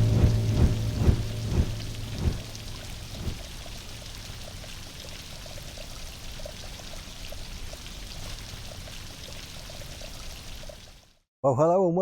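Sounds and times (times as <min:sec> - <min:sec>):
heavy rain falling: 0:00.0 - 0:04.1
water running and pouring: 0:00.0 - 0:11.2
small irregular drips: 0:01.8 - 0:11.2.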